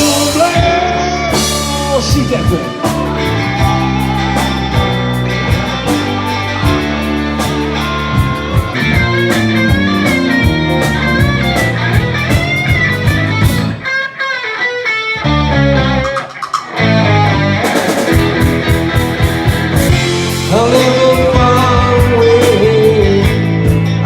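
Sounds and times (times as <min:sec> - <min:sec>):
rock music from car stereo: 0:00.0 - 0:13.9, 0:16.2 - 0:24.0.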